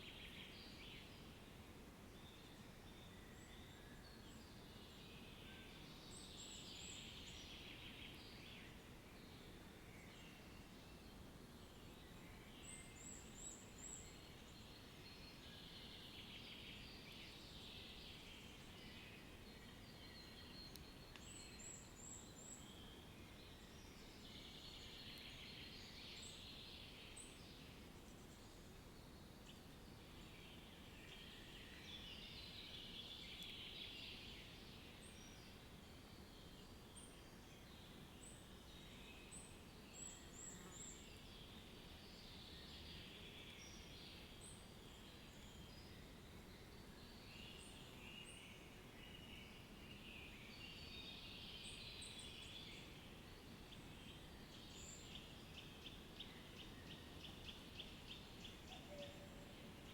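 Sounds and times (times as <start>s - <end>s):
steady low background noise: 0.0s - 59.9s
birds singing: 36.3s - 59.9s.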